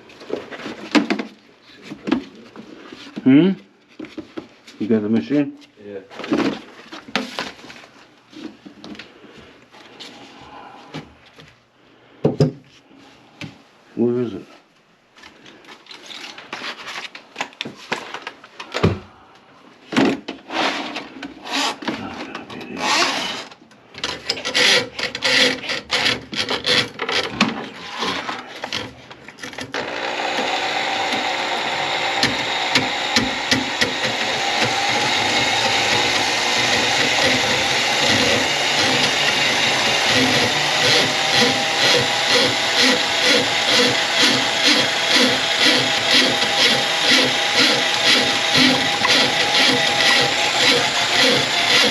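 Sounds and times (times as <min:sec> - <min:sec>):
electric drain cleaning machine running: 0:29.7 - 0:51.9.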